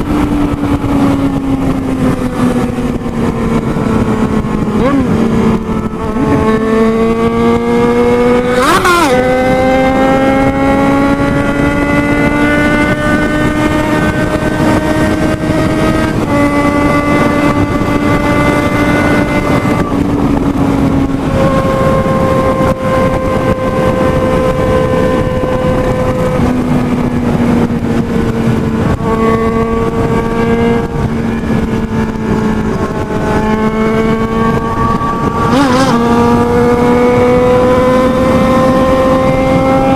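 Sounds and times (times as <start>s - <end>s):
motorcycle engine at high speed: 0.0s - 39.9s
wind rushing: 0.0s - 39.9s
vehicle passing by: 32.4s - 39.9s.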